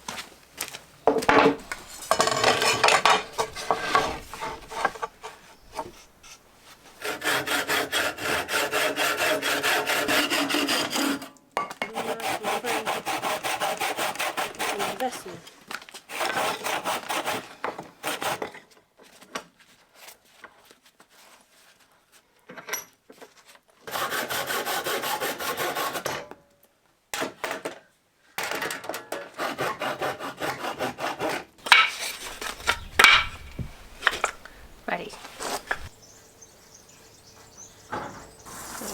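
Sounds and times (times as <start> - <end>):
hand saw cutting wood: 1.1 - 18.6, 23.8 - 26.2, 28.9 - 36.0, 36.8 - 38.9.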